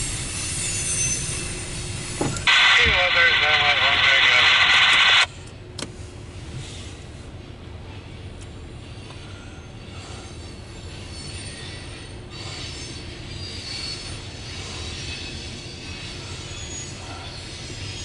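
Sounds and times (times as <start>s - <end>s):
freight train wheels rumbling: 0.0s - 18.0s
high-pitched wheel squeal: 0.4s - 1.6s, 9.3s - 18.0s.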